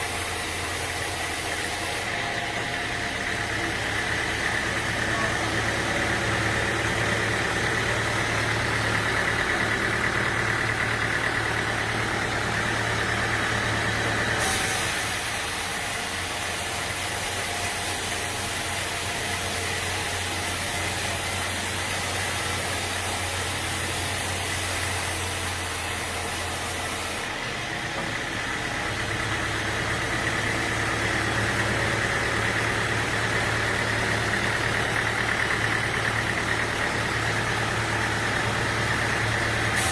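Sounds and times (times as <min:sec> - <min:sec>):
hiss: 0:00.0 - 0:02.4, 0:10.8 - 0:27.3, 0:37.2 - 0:39.9
engine humming steadily: 0:00.0 - 0:39.9.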